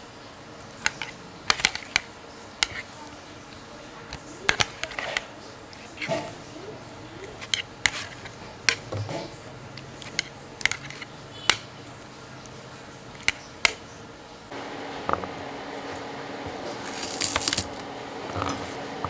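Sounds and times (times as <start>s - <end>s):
faint steady background noise: 0.0s - 19.0s
hard objects clicking and clinking: 0.7s - 6.4s, 7.2s - 13.9s.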